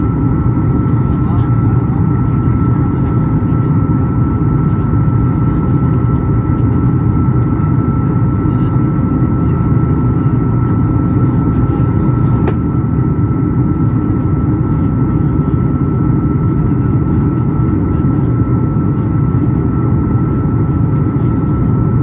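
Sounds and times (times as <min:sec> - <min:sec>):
airplane cabin engine rumble: 0:00.0 - 0:22.0.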